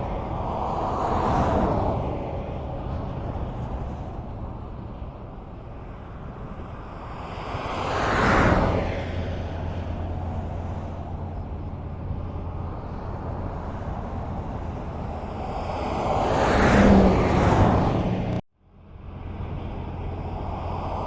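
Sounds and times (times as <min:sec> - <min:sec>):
highway traffic rumble: 0:00.0 - 0:21.0
vehicle passing close: 0:07.3 - 0:18.4.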